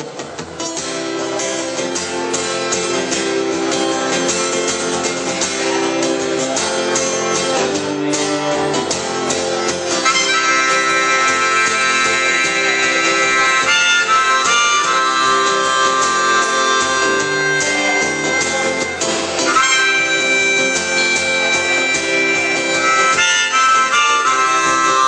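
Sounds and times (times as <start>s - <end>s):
acoustic guitar strumming: 0.0s - 25.0s
harmonica held notes: 8.3s - 25.0s.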